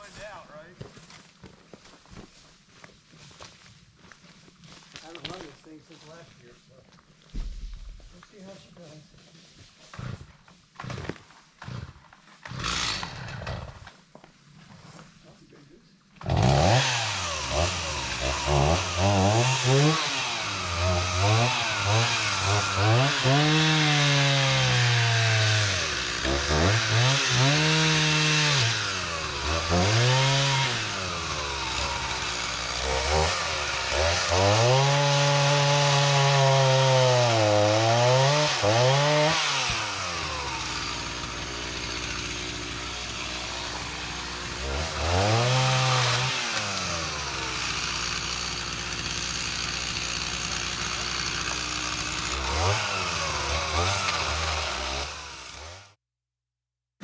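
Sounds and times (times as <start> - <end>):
chainsaw revving and idling: 9.8 - 14.1, 16.2 - 56.0.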